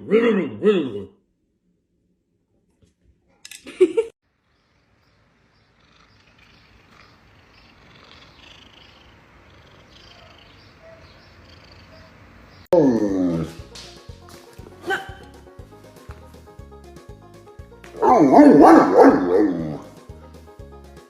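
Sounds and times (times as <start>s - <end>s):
cat yowling: 5.9s - 12.2s.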